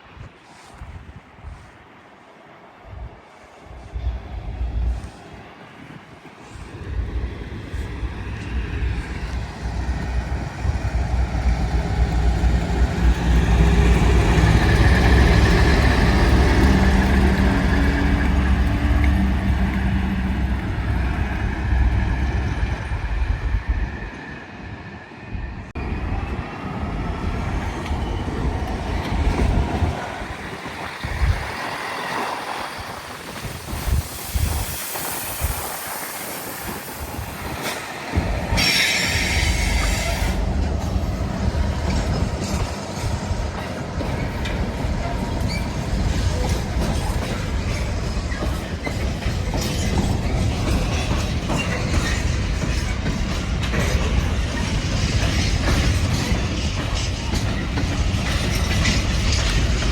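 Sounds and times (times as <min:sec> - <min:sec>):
train engine and wheels rumbling: 0:00.0 - 0:59.9.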